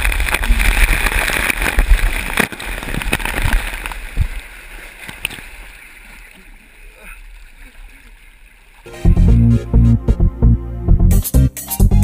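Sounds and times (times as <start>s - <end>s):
water rushing and splashing: 0.0s - 9.0s.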